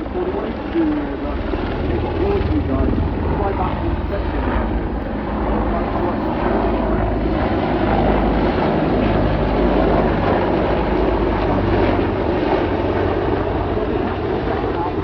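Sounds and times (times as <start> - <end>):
aircraft engine noise: 0.0 - 15.0
low hum: 0.0 - 15.0.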